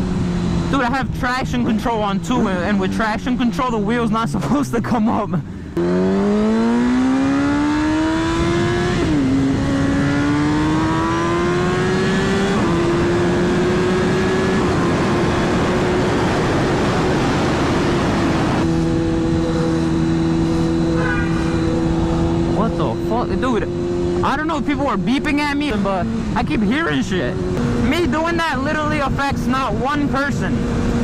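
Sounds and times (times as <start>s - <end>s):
motorcycle engine accelerating: 0.0s - 31.0s
wind noise on microphone: 7.1s - 22.6s.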